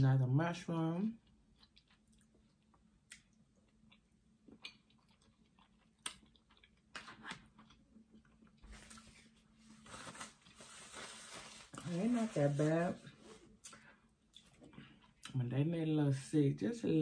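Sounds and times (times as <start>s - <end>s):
close-up chewing with mouth clicks: 1.2s - 6.9s.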